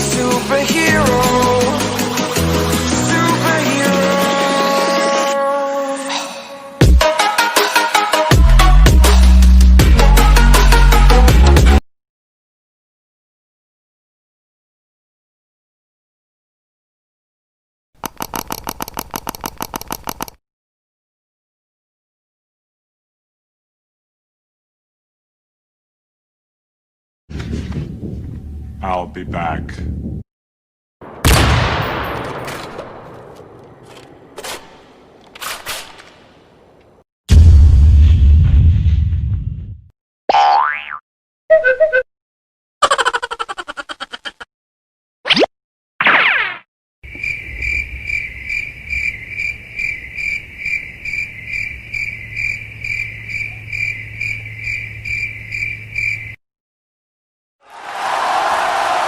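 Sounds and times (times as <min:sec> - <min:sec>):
gunshot with long echo: 0:31.0 - 0:33.6
cricket chirping: 0:47.1 - 0:56.4.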